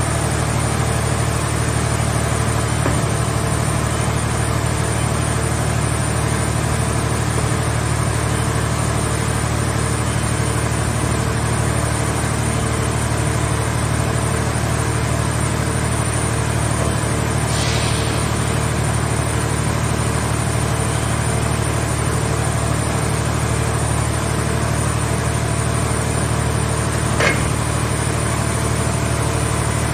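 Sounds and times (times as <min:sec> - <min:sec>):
machine power unit humming: 0:13.8 - 0:29.9
short hiss: 0:17.5 - 0:18.8.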